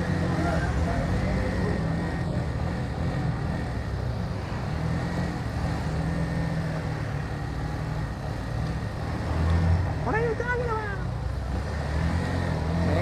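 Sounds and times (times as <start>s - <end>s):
motorcycle engine running: 0.0s - 13.0s
road and wind noise: 0.0s - 13.0s.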